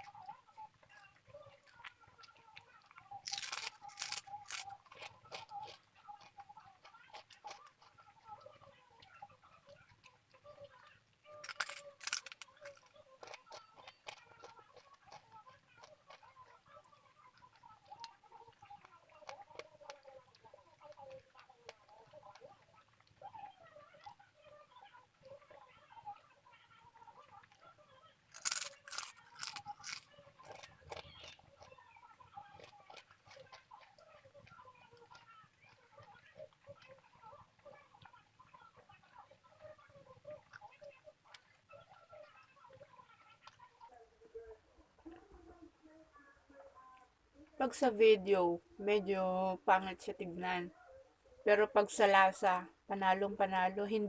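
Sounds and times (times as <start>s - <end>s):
crackle: 0.0s - 44.0s
wet chewing: 0.0s - 45.4s
crisp crunching bites: 3.2s - 6.3s, 11.4s - 16.2s, 28.3s - 31.6s.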